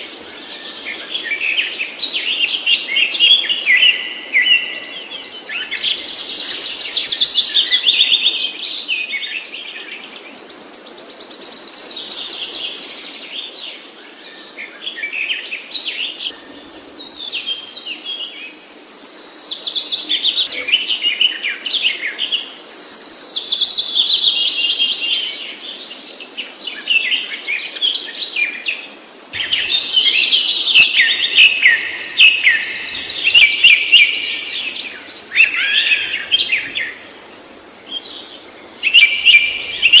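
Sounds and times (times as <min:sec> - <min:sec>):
songbird singing trills: 0:00.0 - 0:13.4, 0:14.3 - 0:26.0, 0:29.4 - 0:37.2, 0:37.8 - 0:40.0.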